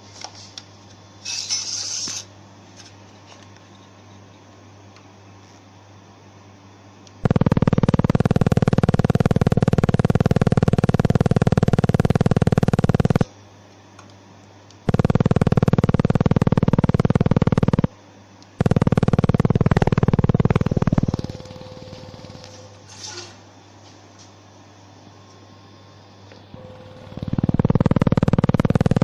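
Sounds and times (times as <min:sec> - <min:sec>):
laser welder buzzing pulses: 0:07.1 - 0:13.3, 0:14.8 - 0:23.2, 0:26.5 - 0:29.0.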